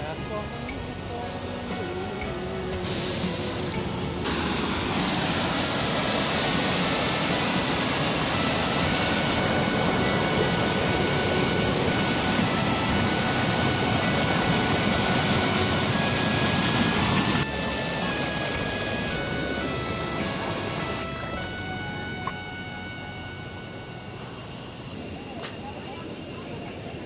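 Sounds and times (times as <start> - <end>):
waterfall rushing over rocks: 0.0 - 21.1.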